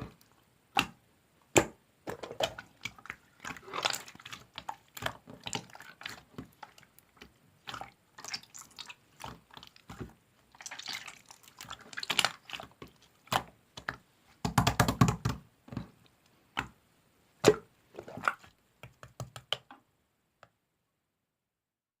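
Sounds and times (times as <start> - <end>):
slime squelching by hand: 2.1 - 14.0, 17.4 - 18.6.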